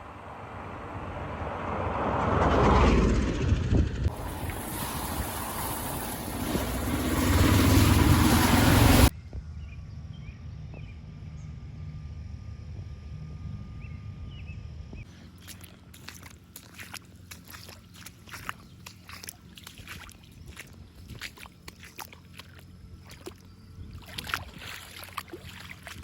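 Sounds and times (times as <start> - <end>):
vehicle engine rising: 0.0 - 9.1
steady low hum: 2.8 - 26.0
wind noise on microphone: 3.2 - 9.8, 23.5 - 26.0.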